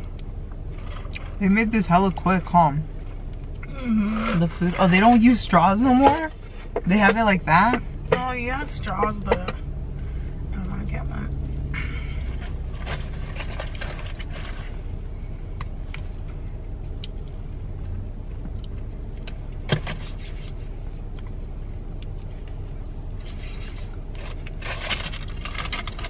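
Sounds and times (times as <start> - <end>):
car cabin engine hum: 0.0 - 26.0
food containers clicking and rustling: 12.4 - 14.8, 24.2 - 26.0.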